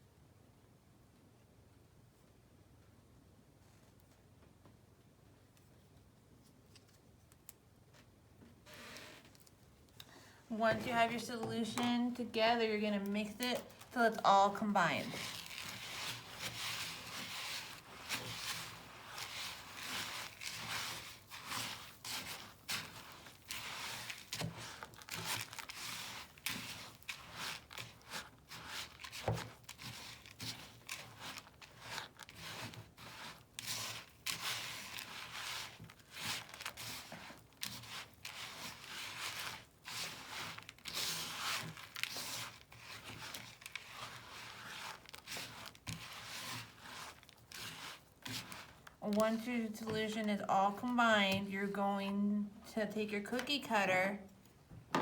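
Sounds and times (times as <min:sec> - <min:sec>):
gritty mixture stirred in a bowl: 0:10.5 - 0:52.0.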